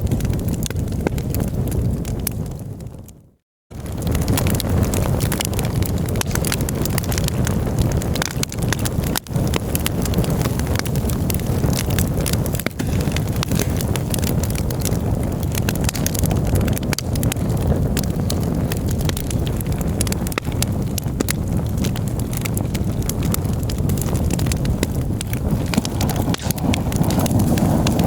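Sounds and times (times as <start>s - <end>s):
campfire crackling and popping: 0.0s - 28.0s
steady low rumble: 25.2s - 28.0s.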